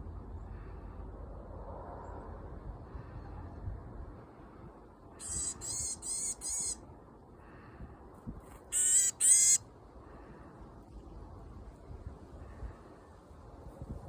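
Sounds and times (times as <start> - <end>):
bird harsh nasal calls: 5.2 - 6.8, 8.6 - 9.6.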